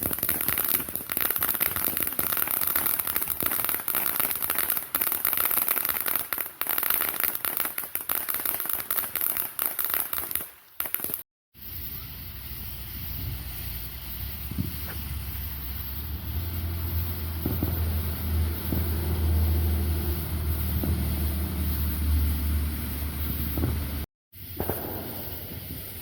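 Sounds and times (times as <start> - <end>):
fireworks crackling: 0.0 - 26.0
wind on microphone: 12.8 - 15.4.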